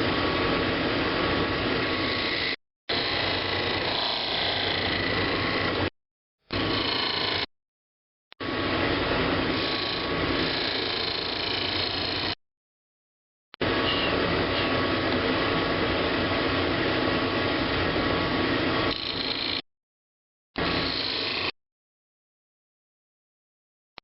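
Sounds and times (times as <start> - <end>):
lathe motor hum: 0.0 - 5.9, 6.5 - 7.5, 8.4 - 12.4, 20.6 - 21.5
lathe tool scraping wood: 1.7 - 5.9, 6.6 - 7.5, 9.4 - 12.4, 20.6 - 21.5.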